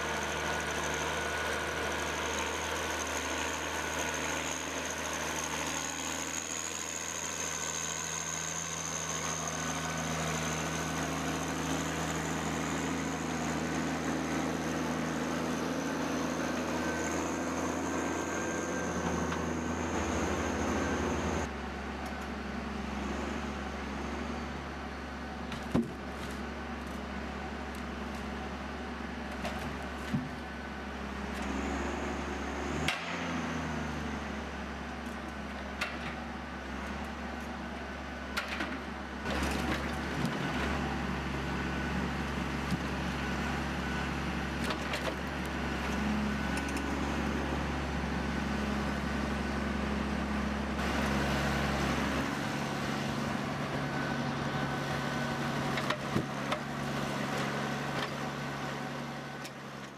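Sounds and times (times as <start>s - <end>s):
engine running: 0.0s - 59.9s.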